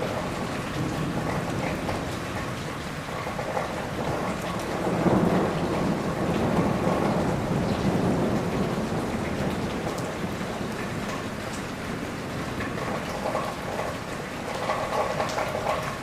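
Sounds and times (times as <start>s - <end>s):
rolling thunder: 0.0s - 2.6s, 3.2s - 12.1s
heavy rain: 0.0s - 16.0s.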